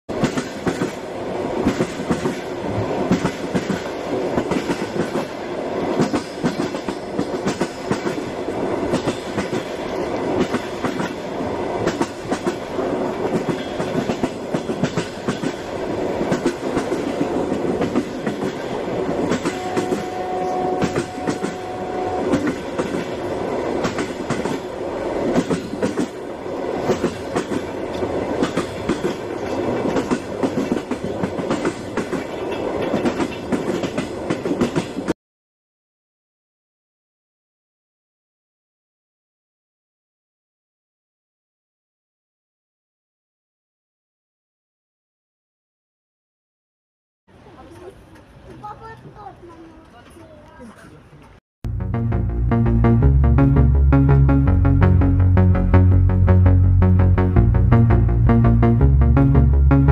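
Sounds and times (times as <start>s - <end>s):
train wheels clattering on rails: 0.1s - 35.1s.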